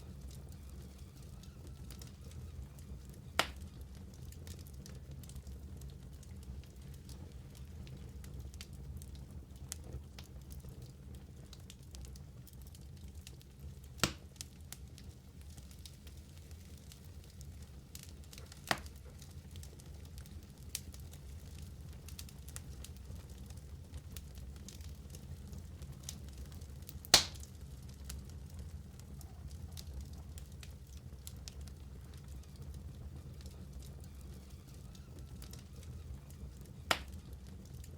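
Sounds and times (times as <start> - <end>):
wood fire crackling and popping: 0.0 - 37.9
loud sharp crack of wood: 27.1 - 27.4.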